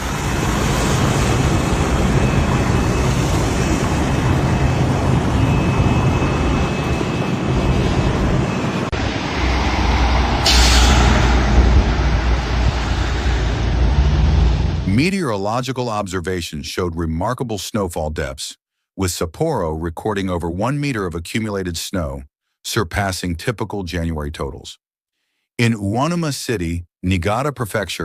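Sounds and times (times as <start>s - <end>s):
heavy vehicle engines rumbling: 0.0s - 15.1s
road noise: 0.0s - 15.1s
loud hiss: 9.4s - 14.2s.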